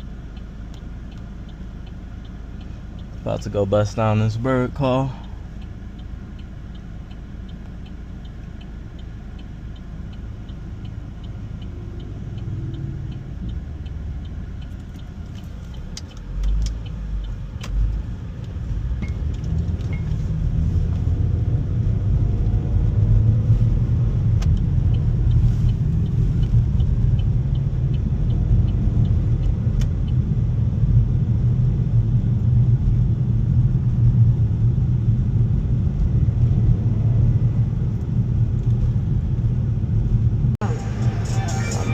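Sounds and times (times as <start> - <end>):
engine and road noise rumble: 0.0 - 41.9
turn signal ticking: 0.0 - 41.9
sharp clicks: 11.2 - 20.1.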